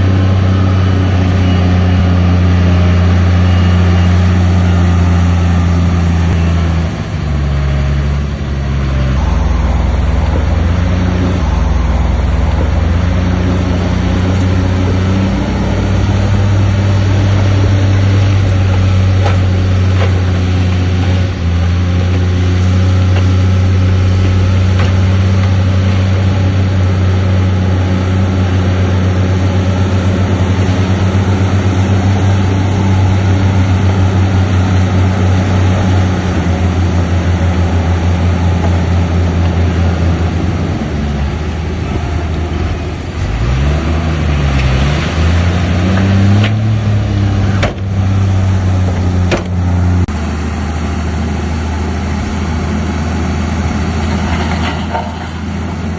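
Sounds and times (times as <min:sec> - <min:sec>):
bulldozer diesel engine running: 0:00.0 - 0:55.9.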